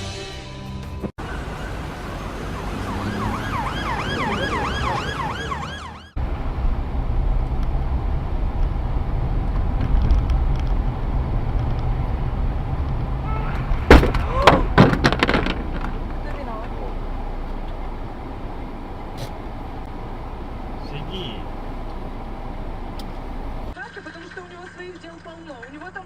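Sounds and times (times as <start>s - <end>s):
road and engine rumble: 0.0s - 26.0s
siren yelping: 1.2s - 6.2s.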